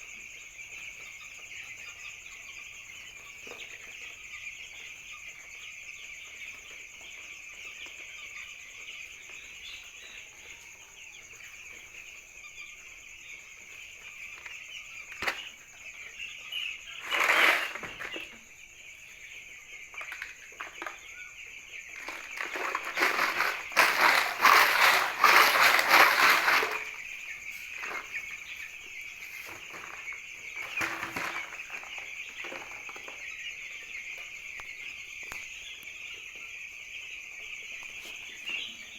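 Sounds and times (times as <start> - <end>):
chicks peeping: 0.0 - 38.9
rustling: 16.8 - 18.4, 21.7 - 33.3.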